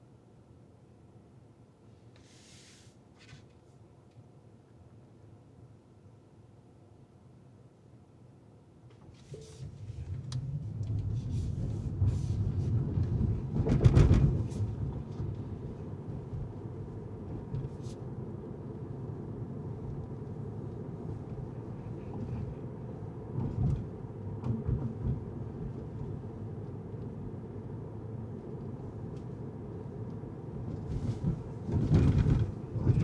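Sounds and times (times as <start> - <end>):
road and engine rumble: 9.1 - 33.0.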